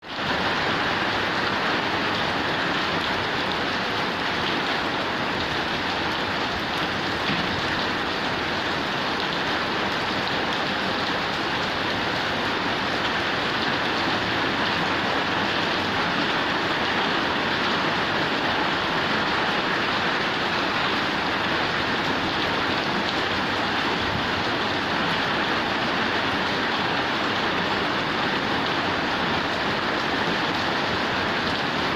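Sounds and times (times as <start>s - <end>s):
heavy rain on metal roof: 0.0s - 31.9s
rain splashing into running water: 0.0s - 31.9s.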